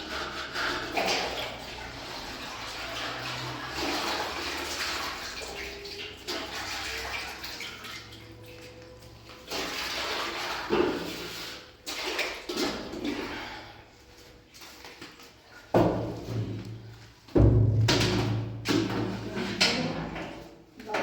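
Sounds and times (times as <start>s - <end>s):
rushing water: 0.0s - 13.3s.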